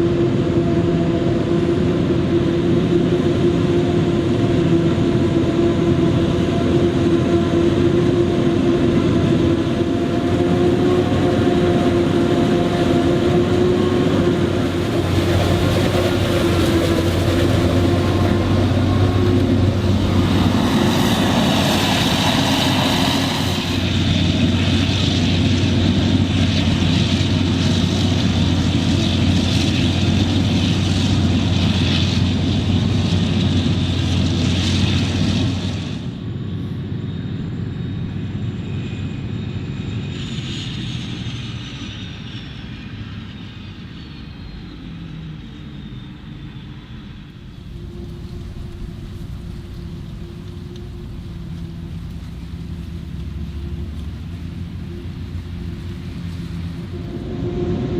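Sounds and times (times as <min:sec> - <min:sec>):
high whine falling in pitch: 0:00.0 - 0:25.7, 0:46.1 - 0:57.9
forage harvester engine and drum: 0:00.0 - 0:36.4, 0:47.4 - 0:57.9.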